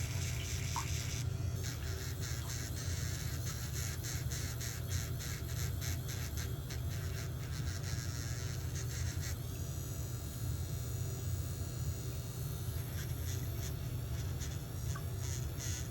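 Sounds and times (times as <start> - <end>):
steady low hum: 0.0 - 15.9
scraping strokes on toenail: 1.7 - 9.4, 12.8 - 15.9.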